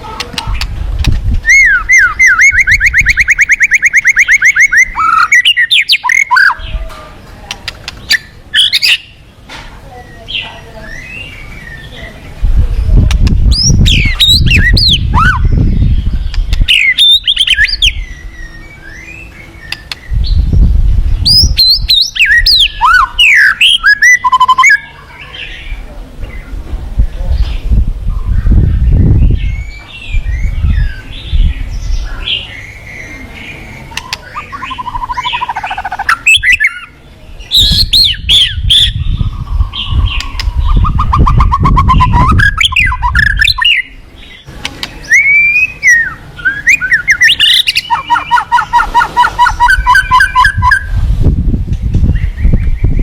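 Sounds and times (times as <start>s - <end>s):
songbird singing trills and whistles: 0.0s - 6.9s, 7.5s - 9.3s, 10.0s - 51.3s, 51.9s - 53.0s
heavy low rumble: 37.1s - 44.7s.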